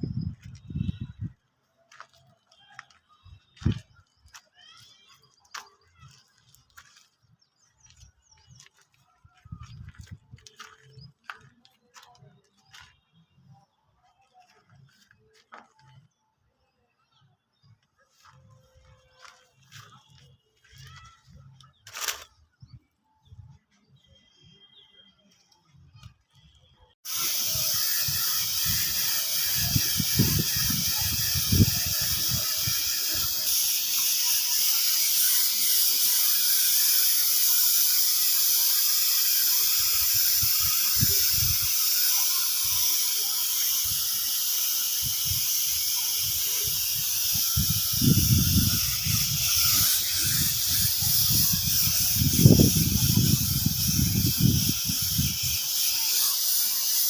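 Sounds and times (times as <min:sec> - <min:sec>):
paint spray gun hissing: 0:27.0 - 0:57.0.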